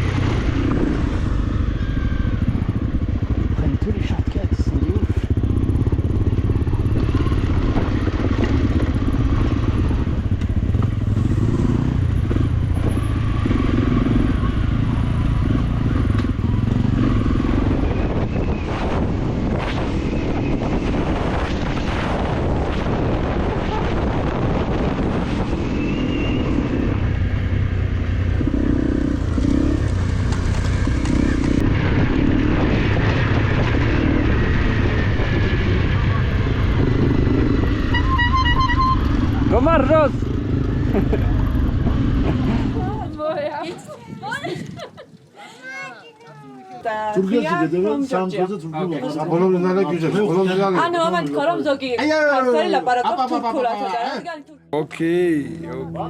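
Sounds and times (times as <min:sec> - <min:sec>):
motorcycle engine running: 0:00.0 - 0:21.1, 0:22.6 - 0:44.8.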